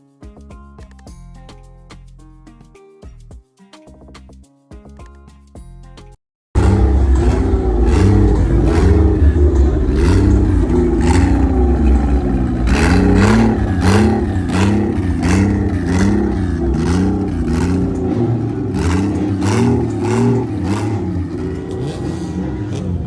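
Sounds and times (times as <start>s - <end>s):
car engine revving: 6.6s - 23.0s.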